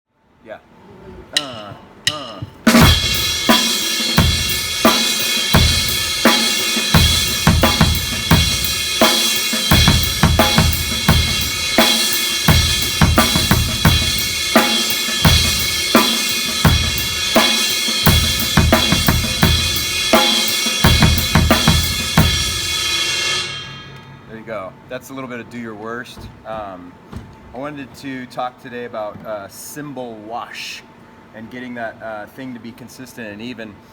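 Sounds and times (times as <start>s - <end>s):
bass drum pattern: 1.4s - 9.1s, 9.7s - 15.9s, 18.1s - 20.2s, 20.8s - 22.6s
snare backbeat: 1.4s - 22.7s
crash cymbal ridden: 1.4s - 24.3s.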